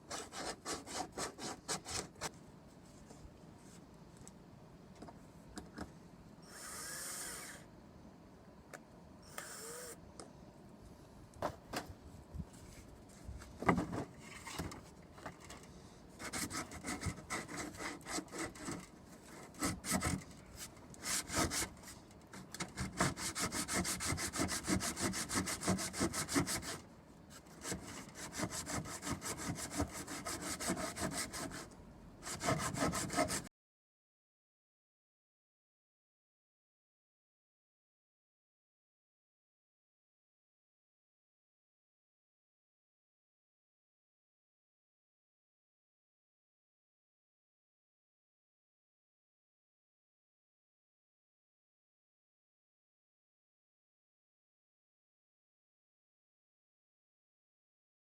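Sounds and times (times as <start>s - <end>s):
hand saw sawing wood: 0.1s - 2.2s, 16.2s - 20.2s, 21.0s - 21.9s, 22.7s - 26.8s, 27.4s - 33.5s.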